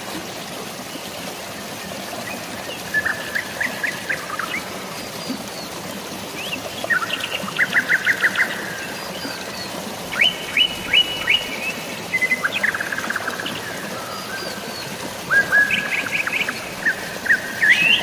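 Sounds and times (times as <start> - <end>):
drizzling rain hiss: 0.0 - 18.0
flowing water: 0.0 - 18.0
birds chirping: 6.8 - 18.0.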